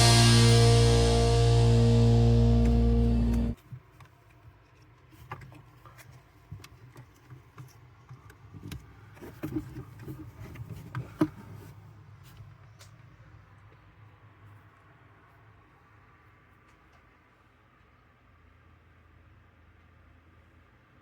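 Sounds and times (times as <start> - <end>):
rock music: 0.0 - 3.6
faint steady hum: 0.0 - 4.1.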